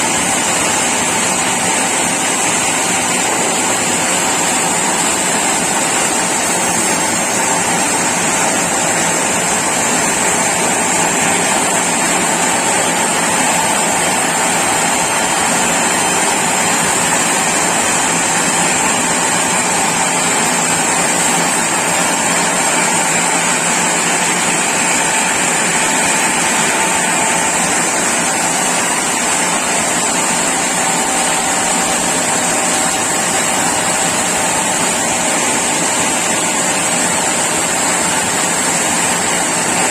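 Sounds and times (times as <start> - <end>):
sawmill saw running: 0.0 - 39.9.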